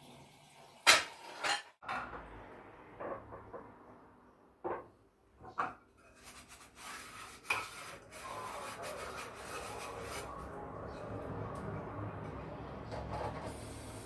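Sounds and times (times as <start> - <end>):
scrubbing by hand: 6.2 - 10.6.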